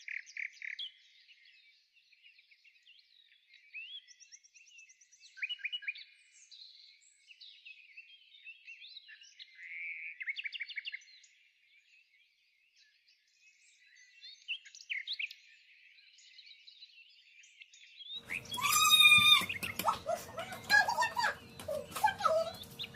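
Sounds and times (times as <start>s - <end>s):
small birds chirping: 18.2s - 22.9s.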